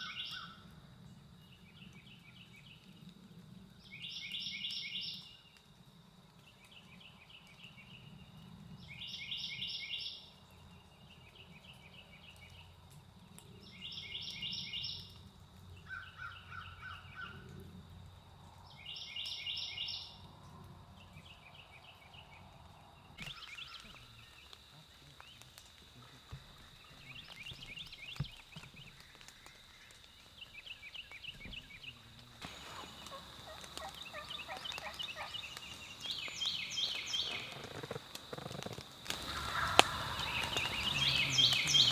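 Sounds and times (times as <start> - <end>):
turkeys gobbling: 32.4 - 41.9.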